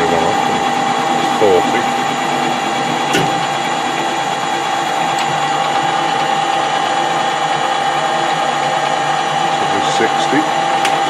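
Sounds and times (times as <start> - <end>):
metal lathe gear whine: 0.0 - 11.0.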